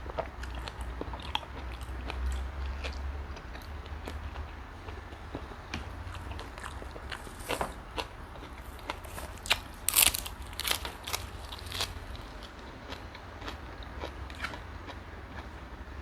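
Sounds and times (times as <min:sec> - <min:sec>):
chewing and biting: 0:00.0 - 0:15.6
prawn shell crunching: 0:06.1 - 0:13.5.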